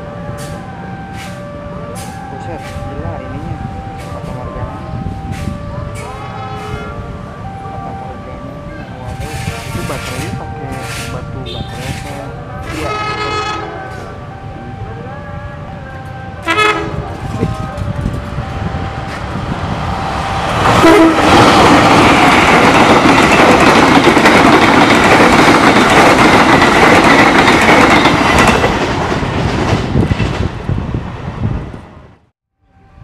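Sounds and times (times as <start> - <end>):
train horn blast: 5.2 - 7.1, 8.8 - 14.8, 15.5 - 18.2, 20.2 - 21.9
train wheels rumbling and clattering: 8.5 - 14.1, 16.6 - 32.2.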